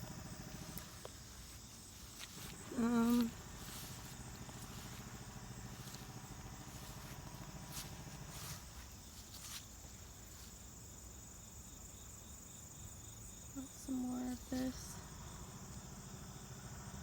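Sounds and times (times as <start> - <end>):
distant motor hum: 0.0 - 10.4, 13.6 - 17.0
high insect trill: 0.0 - 17.0
footsteps on leaf litter: 0.6 - 10.8.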